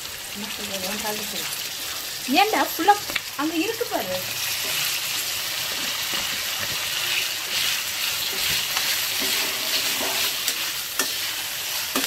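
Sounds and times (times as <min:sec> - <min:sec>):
chicken sizzling in hot fat: 0:00.0 - 0:12.0
spatula stirring: 0:04.4 - 0:12.0.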